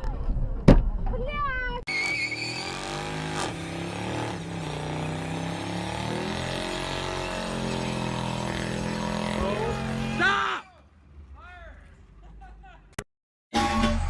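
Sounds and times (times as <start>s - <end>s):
vehicle engine running: 2.8s - 10.3s.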